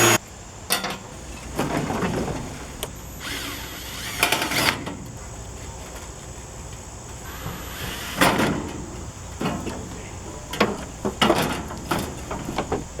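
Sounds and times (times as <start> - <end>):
metal knocks and clanks: 9.4 - 13.0.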